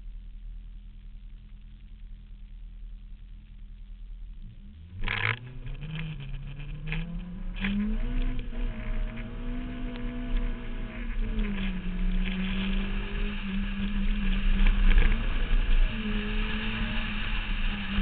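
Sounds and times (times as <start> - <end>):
car engine revving through gears: 4.4 - 18.0.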